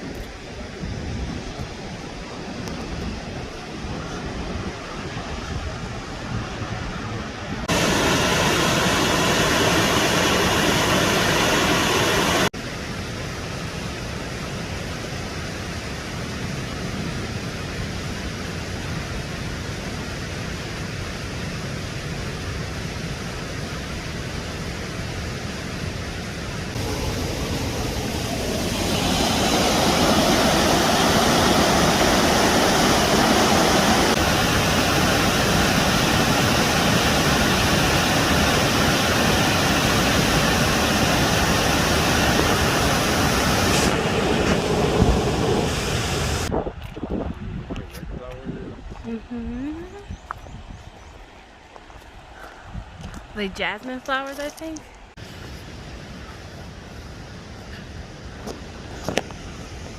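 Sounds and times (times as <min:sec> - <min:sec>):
waterfall roaring: 0:00.0 - 0:46.5.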